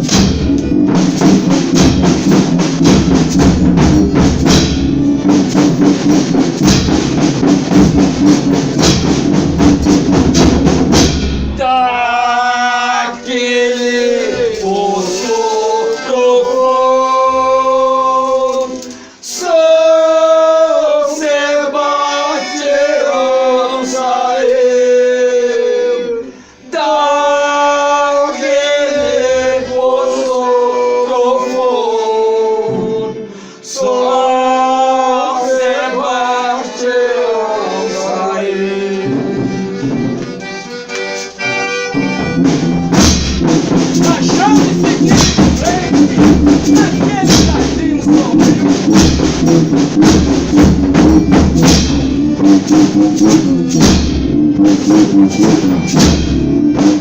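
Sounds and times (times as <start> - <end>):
group singing long held notes: 11.6 - 41.5.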